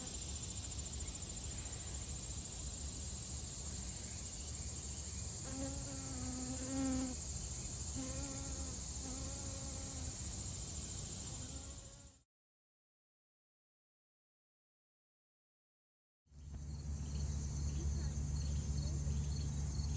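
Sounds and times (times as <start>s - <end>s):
crickets trilling: 0.0s - 12.1s, 16.7s - 19.9s.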